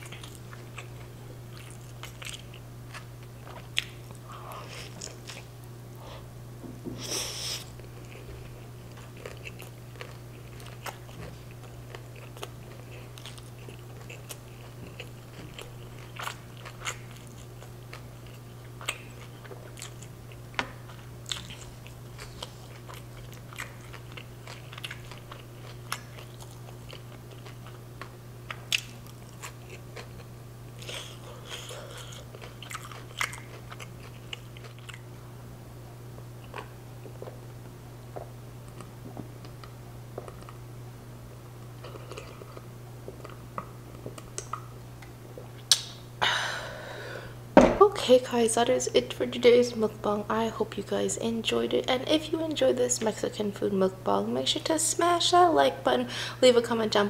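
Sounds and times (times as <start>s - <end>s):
close chewing: 0.0s - 5.5s, 7.8s - 35.1s, 41.7s - 45.8s
steady low hum: 0.0s - 57.0s
wet mouth clicks: 45.7s - 46.0s.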